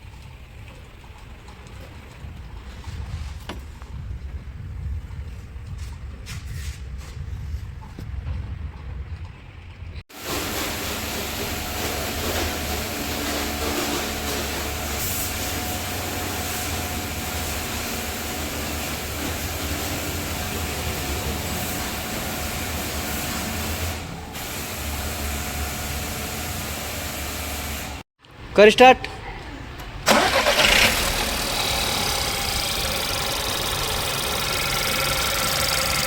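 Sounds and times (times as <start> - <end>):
car engine running: 9.3 - 28.0, 30.0 - 36.0.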